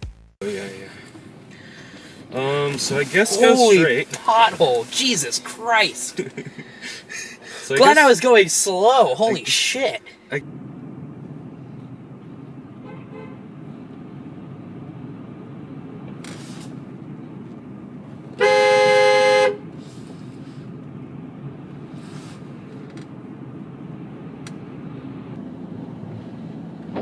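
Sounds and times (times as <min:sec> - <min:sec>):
in-cabin road and engine noise: 0:00.4 - 0:27.0
car horn blast: 0:12.8 - 0:13.4, 0:18.4 - 0:19.8.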